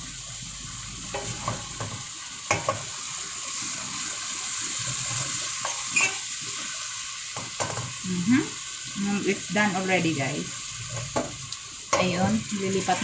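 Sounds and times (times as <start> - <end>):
egg sizzling in frying pan: 0.0 - 13.0
spatula knocking and scraping pan: 1.1 - 2.9, 7.4 - 7.9.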